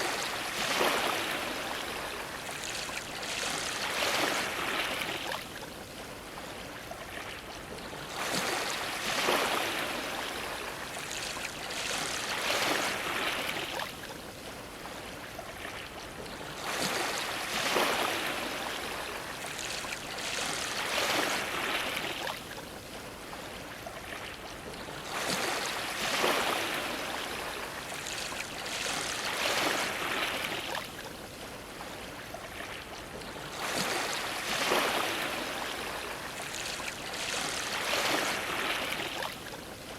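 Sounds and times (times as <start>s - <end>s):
sea waves splashing against dock: 0.0s - 39.9s.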